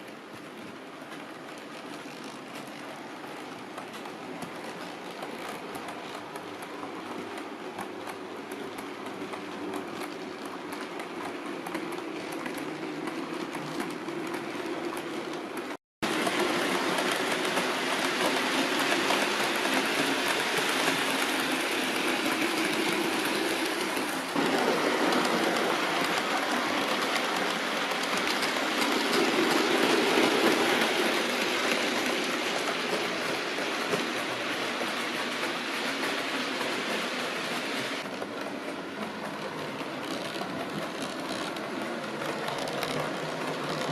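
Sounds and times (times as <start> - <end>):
model train wheels and motors rumbling: 0.0 - 43.9
clicking over rail joints: 22.1 - 43.9.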